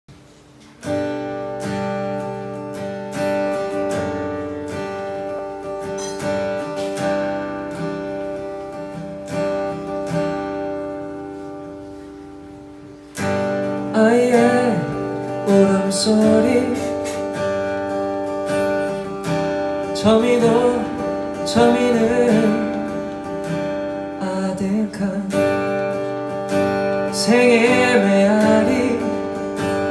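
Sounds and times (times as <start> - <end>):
acoustic guitar strumming chords: 0.1 - 29.9
person singing: 13.9 - 17.2, 19.8 - 23.3, 27.1 - 29.9.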